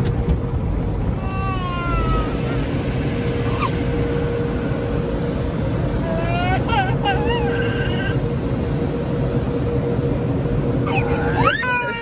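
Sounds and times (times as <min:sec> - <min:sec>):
car wash rumble and hiss: 0:00.0 - 0:12.0
baby whimpering and squealing: 0:10.9 - 0:12.0.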